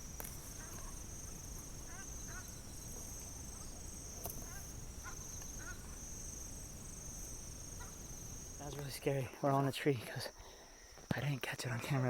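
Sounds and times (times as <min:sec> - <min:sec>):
faint bird chirps: 0:00.0 - 0:09.1
high-pitched insect drone: 0:00.0 - 0:09.1.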